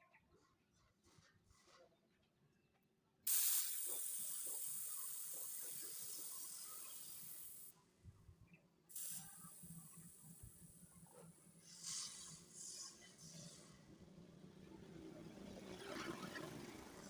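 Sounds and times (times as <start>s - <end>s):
pressurized spray hissing: 3.3s - 7.7s, 8.9s - 10.9s.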